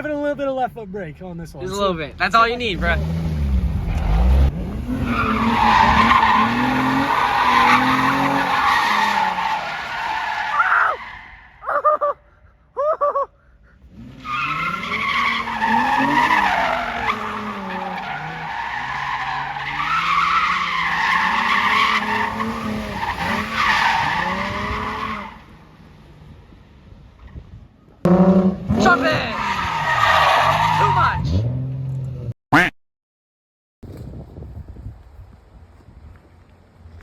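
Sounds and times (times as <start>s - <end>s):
car engine revving: 2.5s - 10.2s, 13.9s - 25.6s, 28.0s - 32.3s
tyres squealing: 14.2s - 25.4s.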